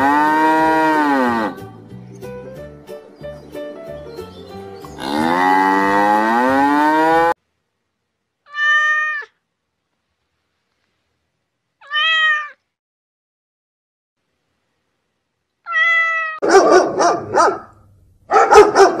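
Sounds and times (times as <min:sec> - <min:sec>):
cow mooing: 0:00.0 - 0:01.6, 0:05.0 - 0:07.4
cat meowing: 0:08.4 - 0:09.4, 0:11.8 - 0:12.7, 0:15.6 - 0:16.4.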